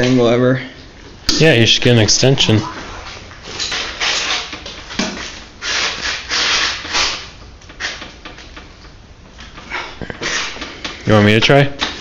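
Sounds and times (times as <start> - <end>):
wrench rubbing and scraping: 5.6 - 8.1.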